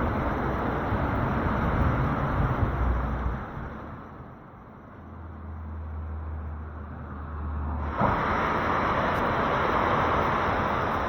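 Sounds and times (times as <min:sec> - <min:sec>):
sea waves washing in: 0:07.7 - 0:11.0.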